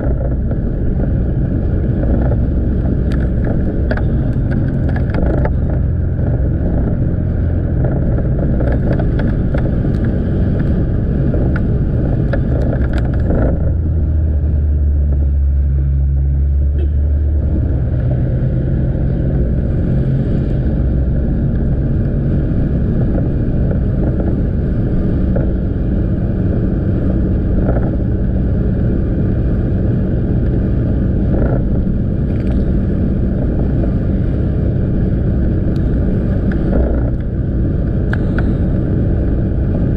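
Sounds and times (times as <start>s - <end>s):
motorbike engine running: 0.0s - 15.3s, 16.0s - 39.9s
deep low rumble: 0.0s - 39.9s
wind and road noise: 0.0s - 39.9s.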